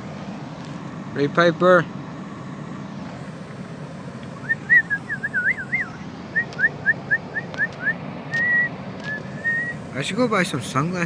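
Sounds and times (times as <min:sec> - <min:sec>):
person whistling: 0:04.4 - 0:09.8.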